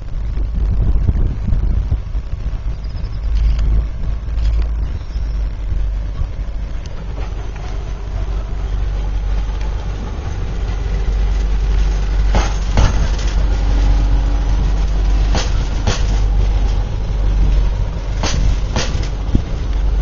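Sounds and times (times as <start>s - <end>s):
train engine rumbling: 0.0s - 20.0s
wheels clacking over rail joint: 6.1s - 20.0s.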